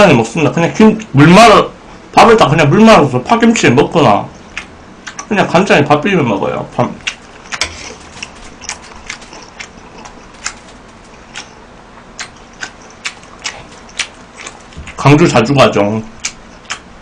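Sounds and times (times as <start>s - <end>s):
person chewing food: 4.4s - 5.3s, 7.0s - 15.0s, 16.1s - 16.9s.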